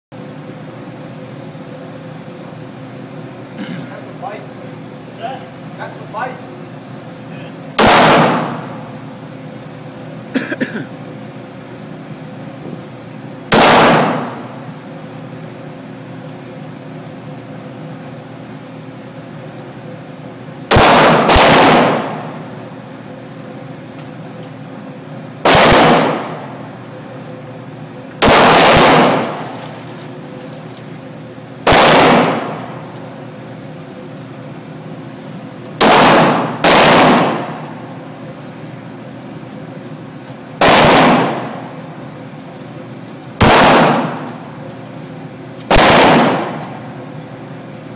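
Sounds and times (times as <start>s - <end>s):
handgun shots with echo: 7.8s - 8.8s, 13.5s - 14.6s, 20.7s - 22.3s, 25.5s - 26.4s, 28.2s - 29.6s, 31.7s - 32.8s, 35.8s - 37.6s, 40.6s - 41.6s, 43.4s - 44.4s, 45.7s - 46.8s.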